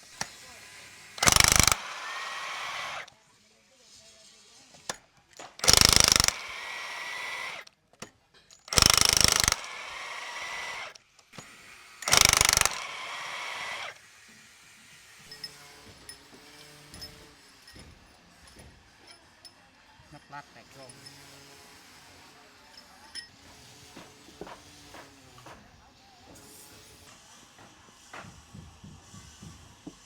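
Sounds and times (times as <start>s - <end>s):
power tool bursts: 0.0s - 3.1s, 5.4s - 7.7s, 8.6s - 14.0s
power tool whirring down: 0.0s - 3.1s, 5.4s - 7.7s, 8.6s - 14.1s.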